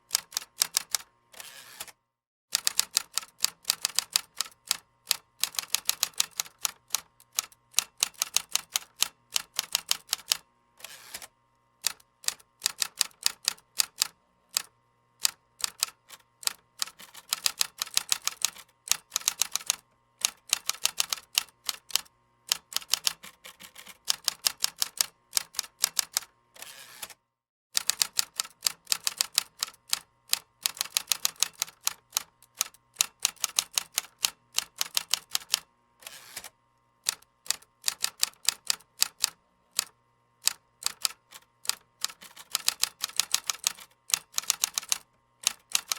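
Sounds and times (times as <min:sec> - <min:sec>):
keyboard typing clicks: 0:40.5 - 0:45.9.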